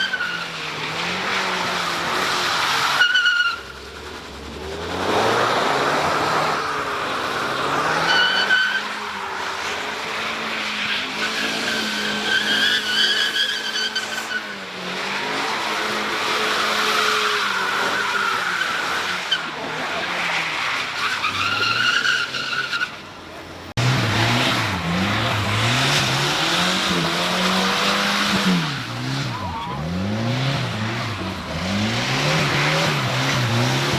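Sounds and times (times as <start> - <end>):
tires squealing: 0.0 - 33.9
car engine revving: 23.7 - 33.9.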